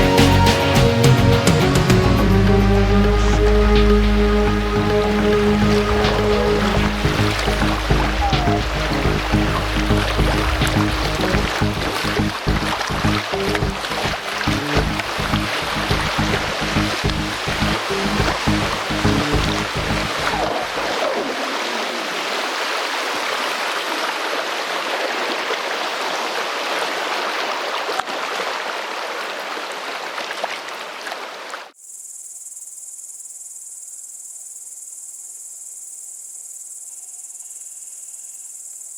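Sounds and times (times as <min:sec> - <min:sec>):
rushing river water: 0:00.0 - 0:31.8
insects chirring: 0:31.8 - 0:38.9.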